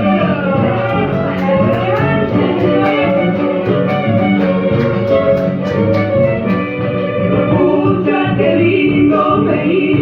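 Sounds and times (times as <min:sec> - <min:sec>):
strummed guitar: 0:00.0 - 0:07.6.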